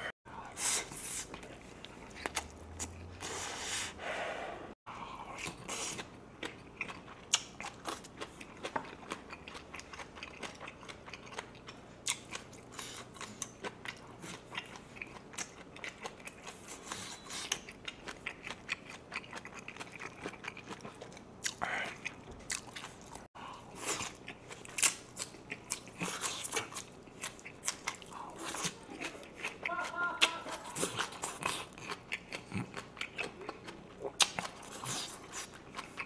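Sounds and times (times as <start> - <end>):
crunchy chewing: 5.3 - 36.0.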